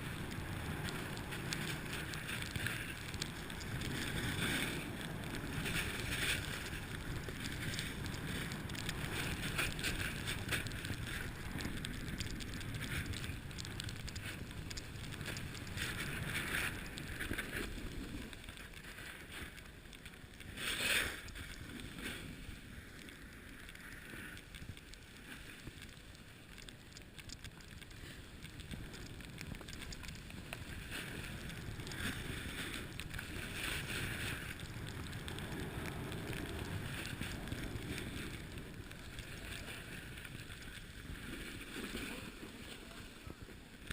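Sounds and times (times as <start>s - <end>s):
snowboard edge scraping snow: 3.7s - 11.4s, 20.5s - 22.8s, 35.2s - 43.6s.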